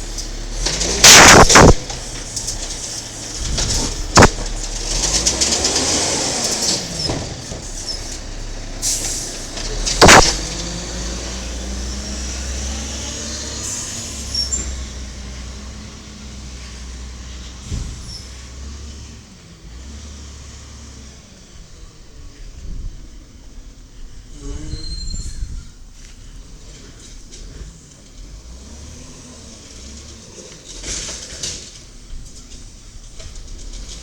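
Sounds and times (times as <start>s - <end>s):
hissing: 0.0s - 4.6s, 10.0s - 10.6s
diesel truck engine humming: 0.0s - 17.7s
loud bang: 0.7s - 2.4s, 3.3s - 4.5s, 9.9s - 10.7s
gliding mechanical whines: 9.5s - 12.1s.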